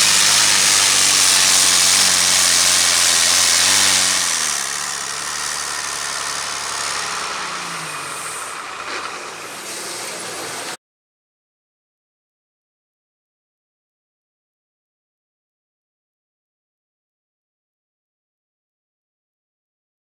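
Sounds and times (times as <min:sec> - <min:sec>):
loud tractor engine running: 0:00.0 - 0:10.8.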